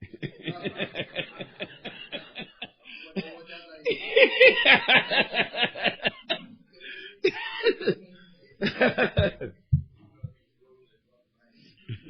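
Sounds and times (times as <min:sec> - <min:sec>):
person laughing: 0:08.8 - 0:09.6.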